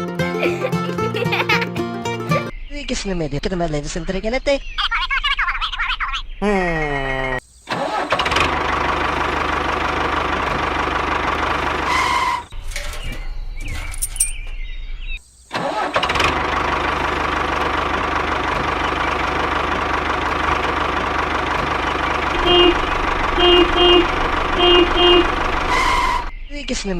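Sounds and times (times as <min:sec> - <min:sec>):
engine running steadily: 0:08.2 - 0:12.4, 0:16.0 - 0:26.4.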